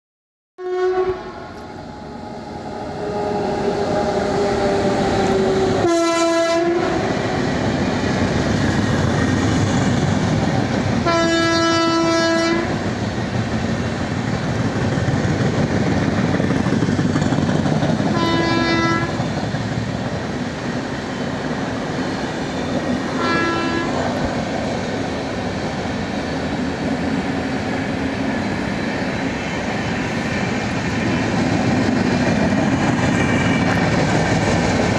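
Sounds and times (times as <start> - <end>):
locomotive horn: 0.6 - 7.3, 11.0 - 12.8, 18.1 - 19.2, 23.1 - 24.1
train rumble and wheel clatter: 0.7 - 34.9.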